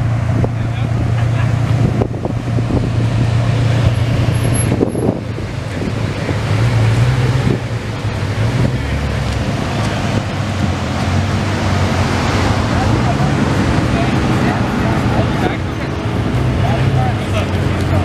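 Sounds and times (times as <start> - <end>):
car engine idling: 0.0 - 18.0
wind noise on microphone: 1.6 - 11.6.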